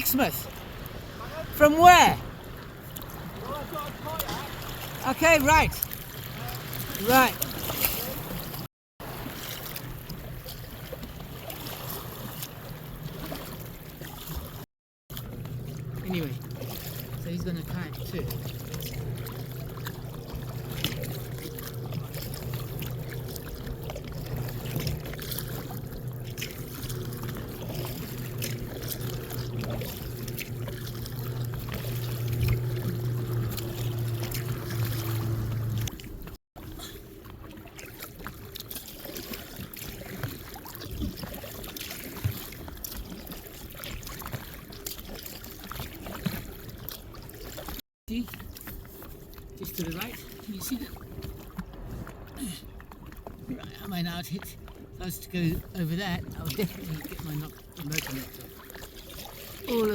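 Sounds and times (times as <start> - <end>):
water splashing around hull: 0.0 - 59.9
small motor droning: 15.2 - 36.4.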